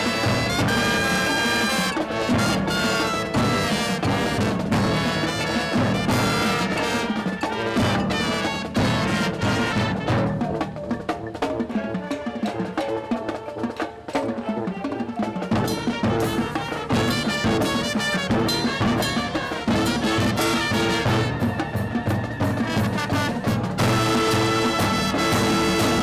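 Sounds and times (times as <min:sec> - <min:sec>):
marching band playing: 0:00.0 - 0:26.0.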